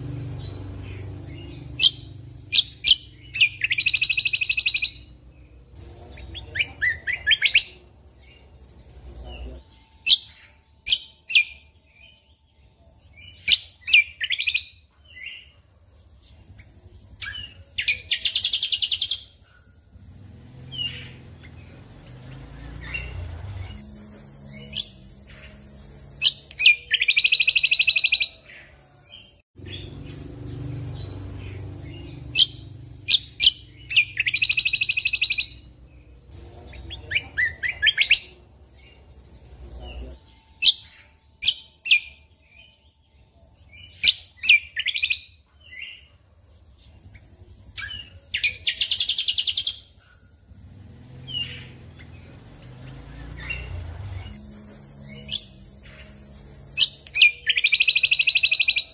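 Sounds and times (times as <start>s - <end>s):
songbird clicking and trilling: 0.0s - 9.0s, 24.7s - 28.4s, 29.6s - 39.6s, 47.0s - 58.9s
faint low hum: 0.0s - 13.9s.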